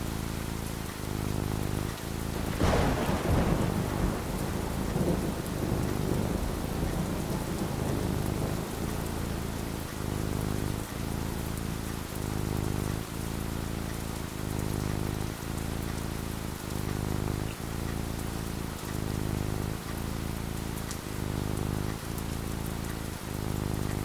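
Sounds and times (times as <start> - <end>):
falling rain: 0.0 - 24.0
thunderclap with rumble: 1.9 - 13.1.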